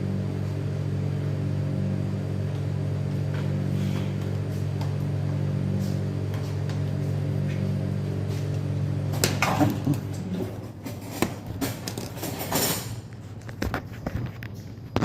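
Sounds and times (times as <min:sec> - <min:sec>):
objects clattering when handled: 0:09.2 - 0:15.0.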